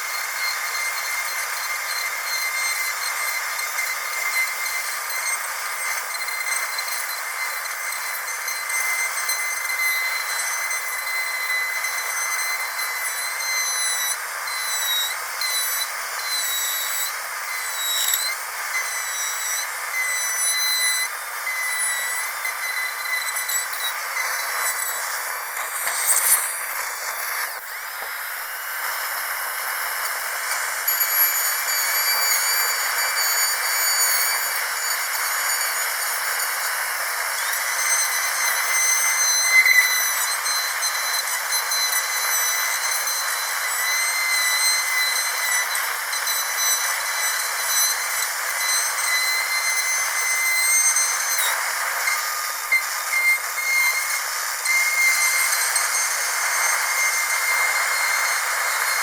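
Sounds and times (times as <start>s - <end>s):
dental drill whining: 0.0s - 59.0s.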